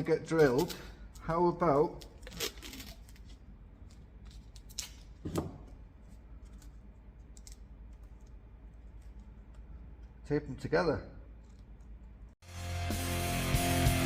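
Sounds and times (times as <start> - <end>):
tape and plastic clicks and crinkles: 0.3 - 5.2.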